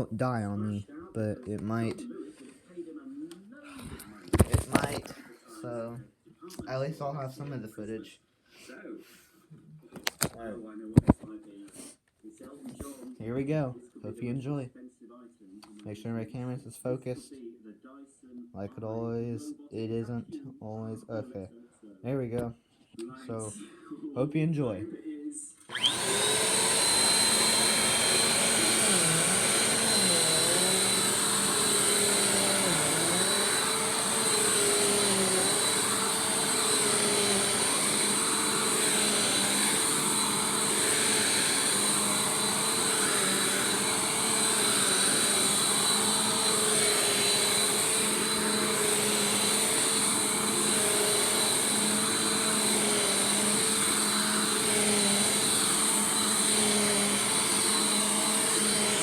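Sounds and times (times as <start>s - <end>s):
vacuum cleaner whining: 4.0s - 5.2s, 25.7s - 59.0s.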